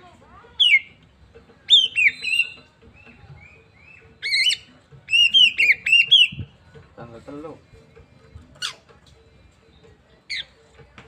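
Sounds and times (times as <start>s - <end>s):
bird singing whistled notes: 0.6s - 1.0s, 1.6s - 6.6s, 9.6s - 10.6s.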